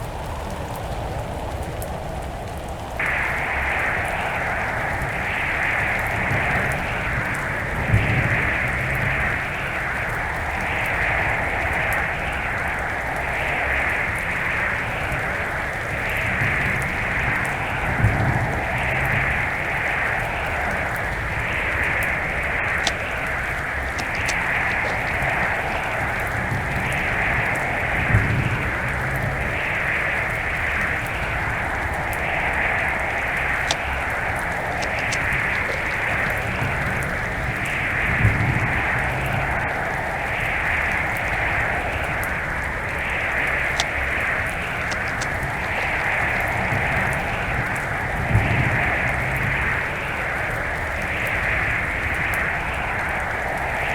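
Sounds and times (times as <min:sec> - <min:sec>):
wind buffeting microphone: 0:20.4 - 0:29.7, 0:30.6 - 0:39.7, 0:42.4 - 0:49.7
faint ticks: 0:22.7 - 0:25.7, 0:33.6 - 0:37.0, 0:43.7 - 0:47.1.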